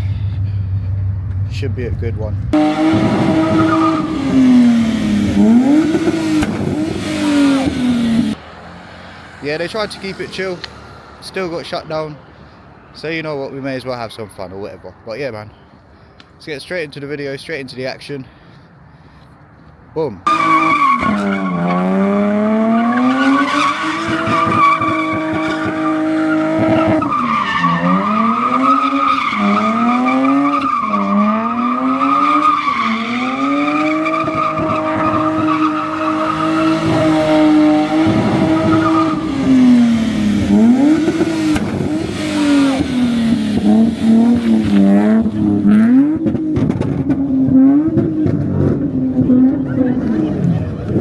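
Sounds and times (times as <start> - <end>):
car engine revving hard: 2.5 - 8.4, 20.3 - 51.0
tyre squeal: 2.6 - 8.3, 20.3 - 45.2.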